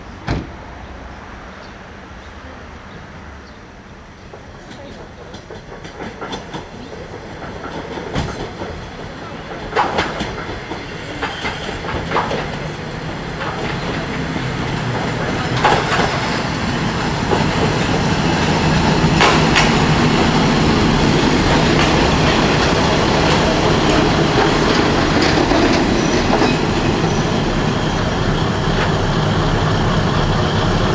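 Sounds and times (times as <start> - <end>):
diesel railcar running: 0.0 - 30.9
wheels clicking over rail joints: 4.2 - 30.9.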